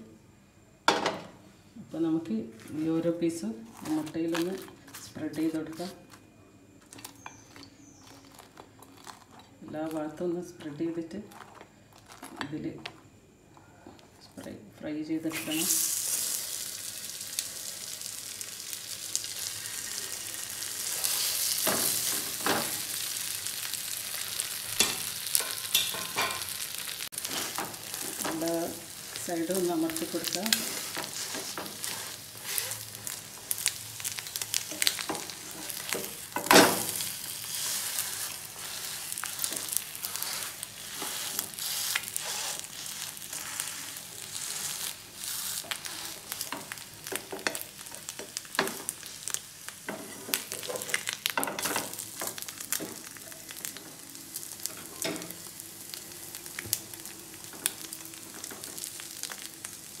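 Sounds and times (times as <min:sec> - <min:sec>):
pastry sizzling in hot oil: 0:15.2 - 1:00.0
spatula scraping a pan: 0:30.2 - 0:33.6, 0:34.8 - 0:46.8.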